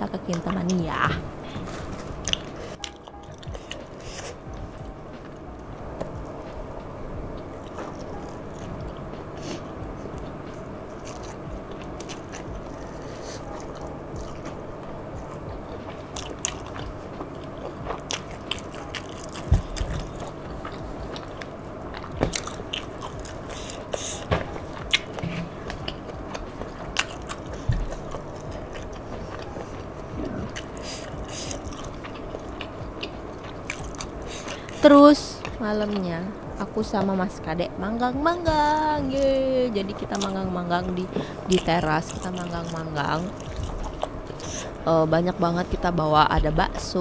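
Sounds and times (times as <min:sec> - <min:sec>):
person chewing: 0:01.6 - 0:06.7, 0:07.4 - 0:34.8, 0:41.1 - 0:44.9.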